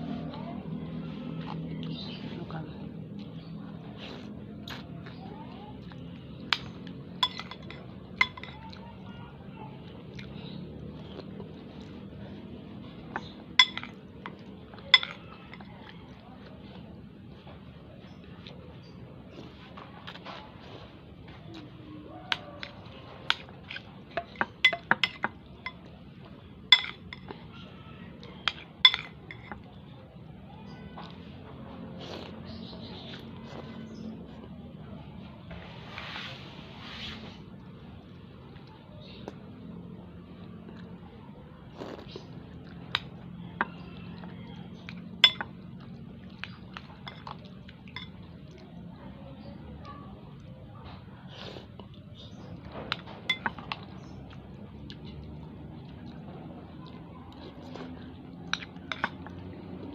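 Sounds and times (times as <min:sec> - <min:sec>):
cutlery clinking against a bowl: 0:06.5 - 0:08.8, 0:13.0 - 0:16.2, 0:22.3 - 0:25.9, 0:26.6 - 0:27.6, 0:28.2 - 0:29.8, 0:41.9 - 0:48.6, 0:51.9 - 0:54.4, 0:57.7 - 0:59.6.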